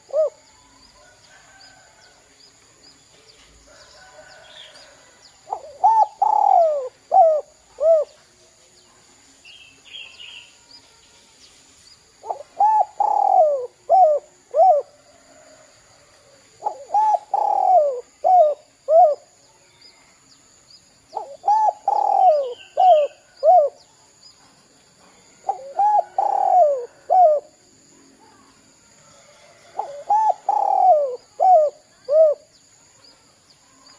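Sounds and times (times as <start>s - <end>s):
dove cooing: 0.0s - 0.4s, 5.4s - 8.2s, 12.2s - 15.0s, 16.6s - 19.3s, 21.1s - 23.8s, 25.4s - 27.6s, 29.7s - 32.5s.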